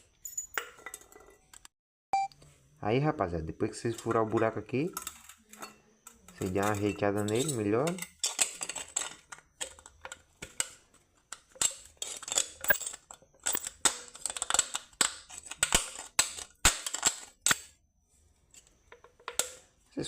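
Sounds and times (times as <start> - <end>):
metallic clicks and scrapes on can: 4.9 - 17.6.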